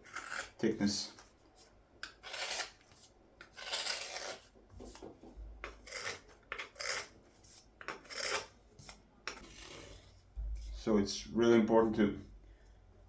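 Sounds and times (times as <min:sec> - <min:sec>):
knife shaving wood: 0:00.0 - 0:01.0, 0:02.0 - 0:04.5, 0:05.6 - 0:10.0.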